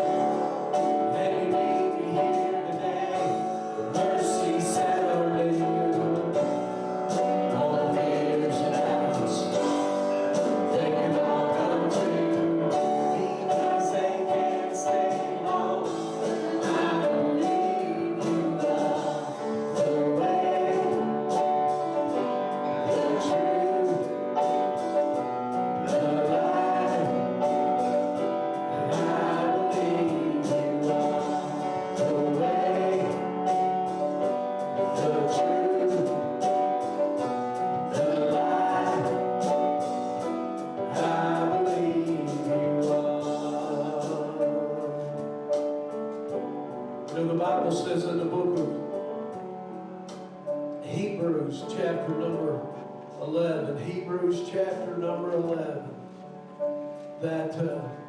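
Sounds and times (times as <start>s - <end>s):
steady percussive beat: 0.0s - 44.9s
voices singing gospel: 0.0s - 56.2s
instrumental accompaniment: 0.0s - 58.0s.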